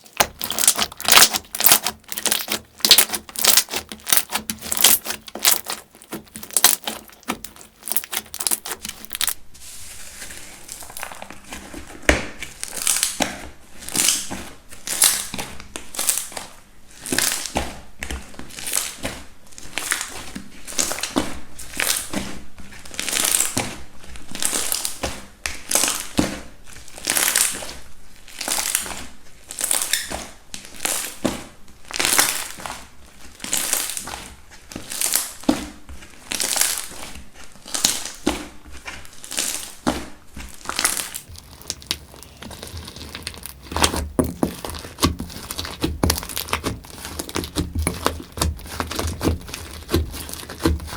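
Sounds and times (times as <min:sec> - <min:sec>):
slime squeezed by hand: 0:00.0 - 0:09.4, 0:40.6 - 0:50.9.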